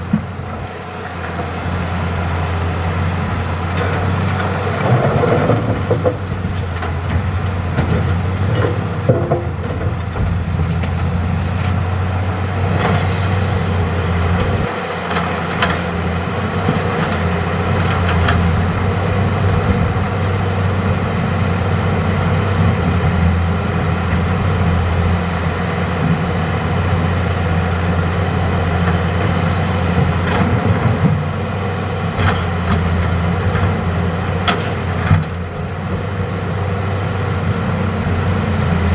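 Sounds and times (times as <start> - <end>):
excavator diesel engine running: 0.0 - 38.9
short knocks and clatter: 3.8 - 11.1.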